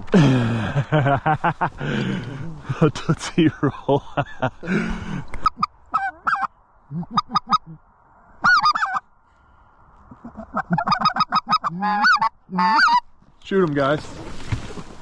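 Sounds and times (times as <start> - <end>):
goose honking: 5.4 - 7.8, 8.4 - 9.0, 10.1 - 13.0.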